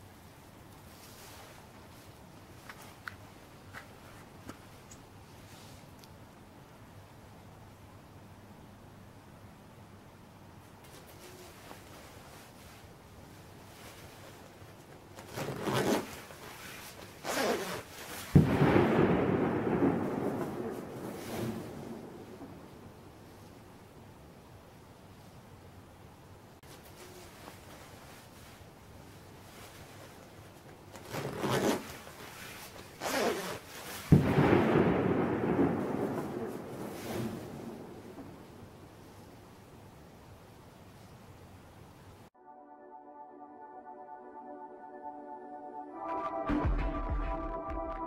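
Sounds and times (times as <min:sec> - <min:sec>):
boom with long rumble: 0:18.4 - 0:22.7, 0:34.2 - 0:38.4
loud rumbling boom: 0:34.2 - 0:38.5.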